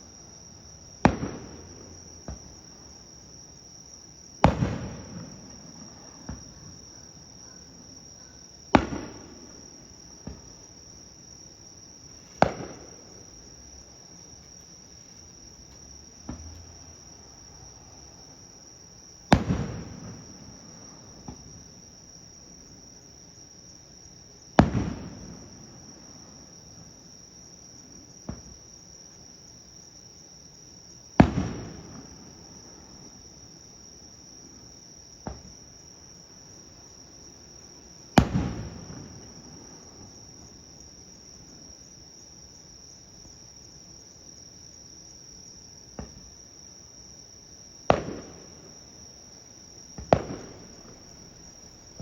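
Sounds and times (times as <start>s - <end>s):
fireworks booming: 1.0s - 2.9s, 4.4s - 7.0s, 8.7s - 10.8s, 12.2s - 17.7s, 19.2s - 21.8s, 24.5s - 26.2s, 31.2s - 33.1s, 35.2s - 35.6s, 38.2s - 40.4s, 47.9s - 49.0s, 49.8s - 52.0s
insect chirring: 38.8s - 52.0s.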